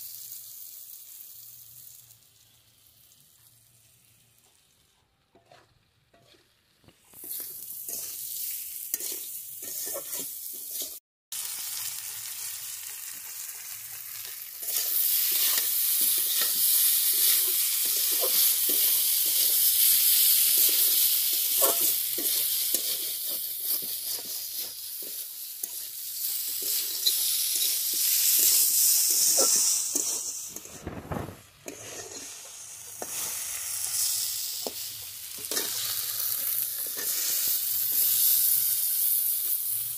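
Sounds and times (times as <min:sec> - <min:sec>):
food sizzling in a pan: 0:00.0 - 0:39.9
metal spatula scraping: 0:05.3 - 0:06.6, 0:07.2 - 0:11.0, 0:14.2 - 0:38.8.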